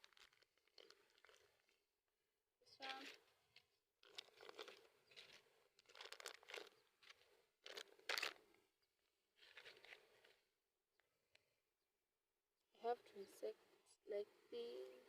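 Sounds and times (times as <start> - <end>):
plastic packaging crinkling and tearing: 0.0 - 1.8, 2.8 - 8.4, 9.4 - 10.3.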